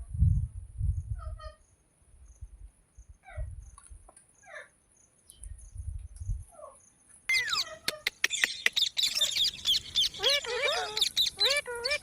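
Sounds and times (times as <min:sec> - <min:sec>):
parrot chirping and whistling: 0:07.3 - 0:12.0.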